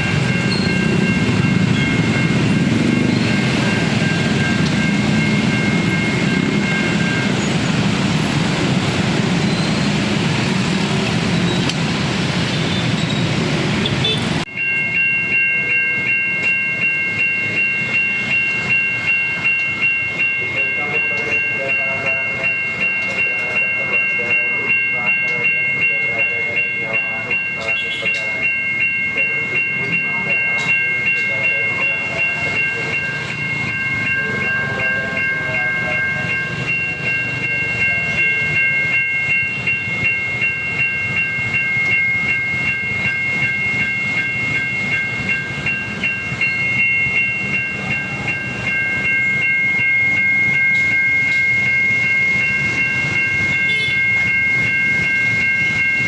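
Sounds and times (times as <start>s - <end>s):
electronic crossing bell ringing: 0.0s - 56.0s
train rumbling past: 0.0s - 56.0s.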